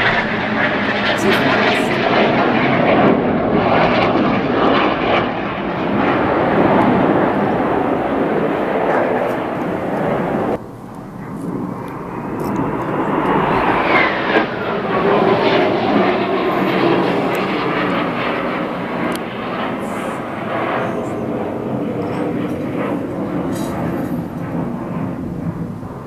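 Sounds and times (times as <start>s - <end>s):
aircraft engines flying past: 0.0s - 26.0s.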